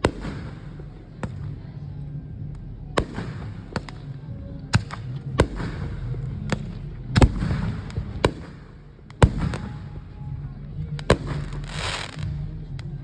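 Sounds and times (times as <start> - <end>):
fireworks crackling: 0.0 - 1.5, 11.0 - 12.4.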